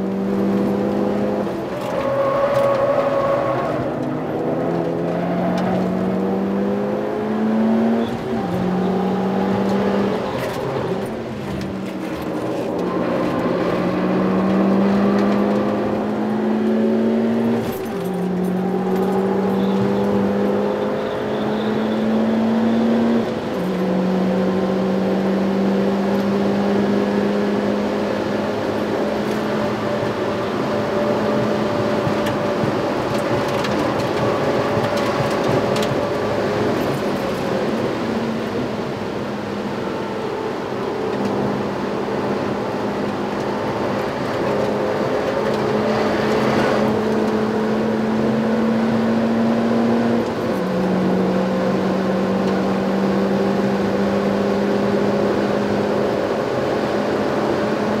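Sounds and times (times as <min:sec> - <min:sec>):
car engine running hard: 0:00.0 - 0:58.0
road and wind noise: 0:00.0 - 0:58.0.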